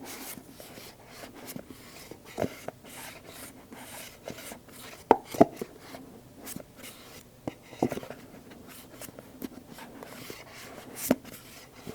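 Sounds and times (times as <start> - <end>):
fingers scratching cardboard: 0.0 - 11.9
sharp knocks on cardboard: 5.1 - 5.6.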